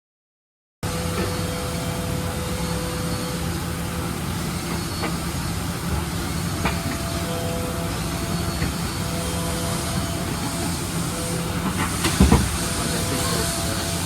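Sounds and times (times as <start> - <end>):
machine drone and hum: 0.8 - 14.0.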